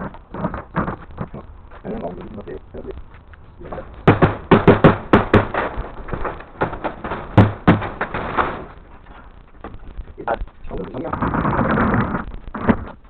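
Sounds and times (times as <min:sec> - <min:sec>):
sharp knocks on wood: 0:04.0 - 0:08.6.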